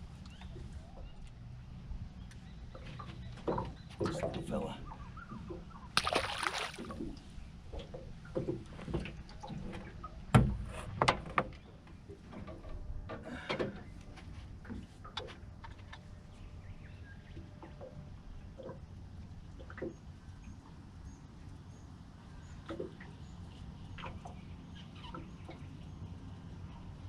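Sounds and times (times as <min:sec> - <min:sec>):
knocks in a boat: 0:07.8 - 0:11.6.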